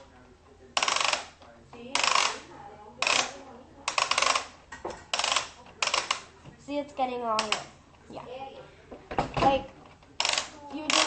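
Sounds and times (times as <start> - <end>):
toy crank ratcheting clicks: 0.8 - 1.3, 1.9 - 2.4, 3.0 - 4.5, 5.1 - 6.2, 10.2 - 11.0.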